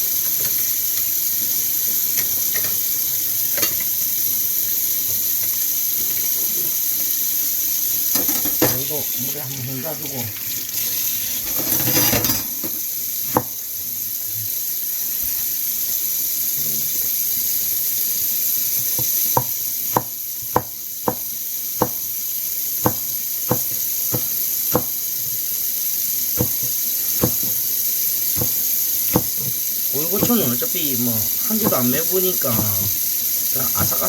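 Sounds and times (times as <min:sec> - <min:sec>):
tap water running: 0:00.0 - 0:34.0
knife chopping on cutting board: 0:13.3 - 0:13.5, 0:18.9 - 0:22.1, 0:22.8 - 0:25.0, 0:26.4 - 0:27.6, 0:28.4 - 0:30.6, 0:31.6 - 0:32.8.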